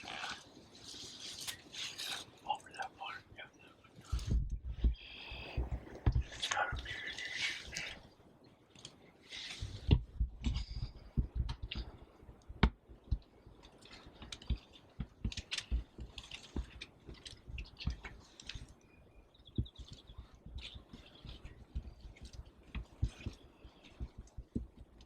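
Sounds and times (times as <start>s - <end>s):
handling clicks and thumps: 9.6s - 18.8s
bird chirping: 17.6s - 22.2s.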